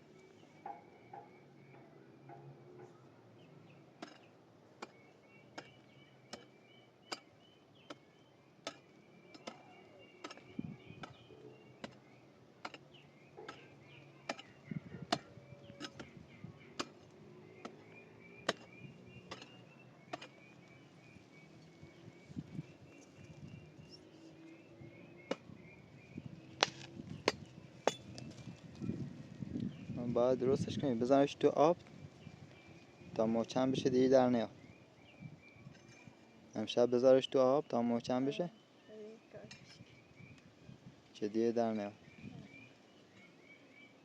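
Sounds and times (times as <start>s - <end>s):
faint high chirping: 9.1s - 26.6s, 41.7s - 44.0s.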